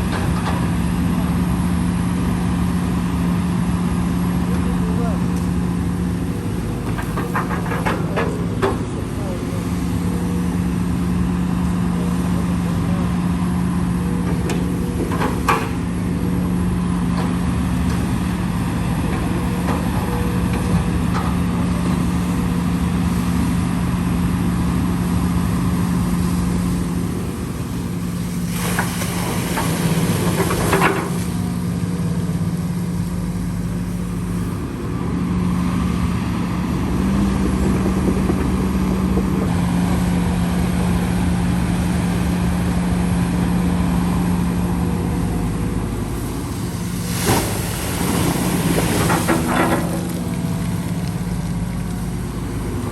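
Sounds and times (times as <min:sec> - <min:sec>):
heavy diesel engine running: 0:00.0 - 0:52.9.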